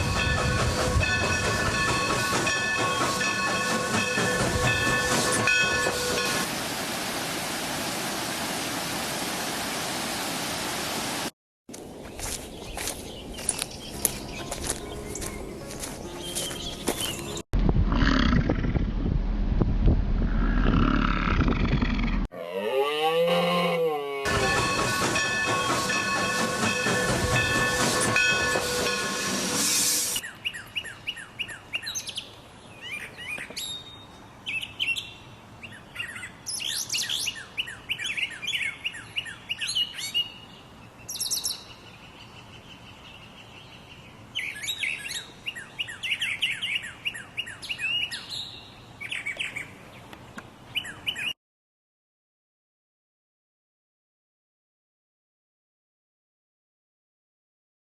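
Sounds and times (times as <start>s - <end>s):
birds chirping: 11.9s - 17.4s.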